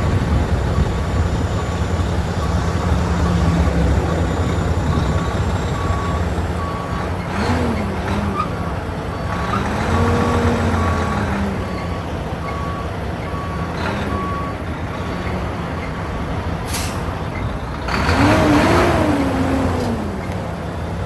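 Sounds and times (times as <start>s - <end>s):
diesel truck engine running: 0.0s - 21.0s
backup alarm beeping: 0.7s - 7.0s.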